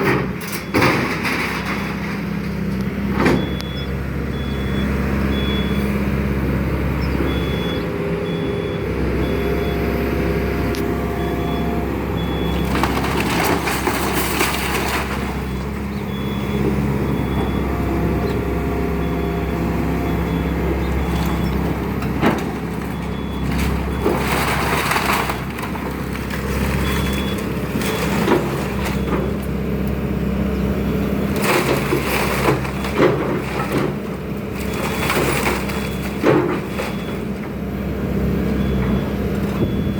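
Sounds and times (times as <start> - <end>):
diesel engine running: 0.0 - 39.9
wood cracking and crushing: 12.3 - 16.4, 22.0 - 29.5, 31.2 - 37.5.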